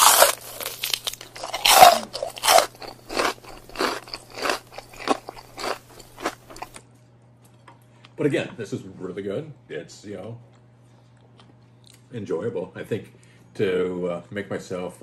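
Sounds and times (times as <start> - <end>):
person chewing crunchily: 0.0 - 6.8.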